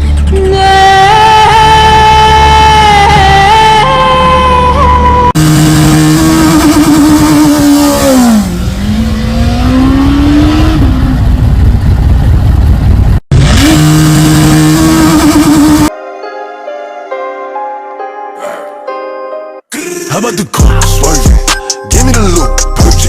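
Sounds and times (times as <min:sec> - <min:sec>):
motorcycle engine revving: 0:04.2 - 0:15.9
song with vocals: 0:19.7 - 0:23.0.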